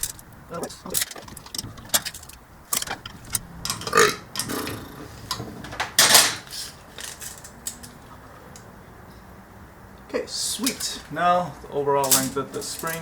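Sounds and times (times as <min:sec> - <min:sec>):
metal clicks and knocks: 0:00.0 - 0:04.5.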